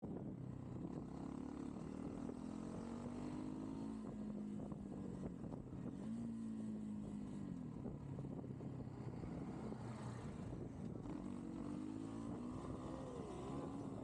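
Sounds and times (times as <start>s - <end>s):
motorcycle engine revving: 0.7s - 14.0s.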